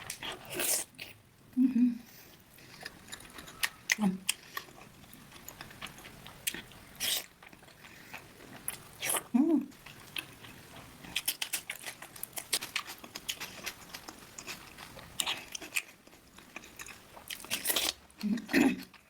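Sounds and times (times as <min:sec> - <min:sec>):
person humming: 0:01.6 - 0:02.0
crunchy food chewing: 0:02.3 - 0:19.0.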